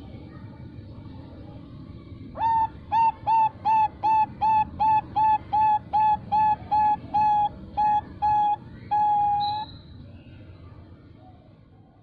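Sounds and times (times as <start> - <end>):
dove cooing: 2.4 - 9.6.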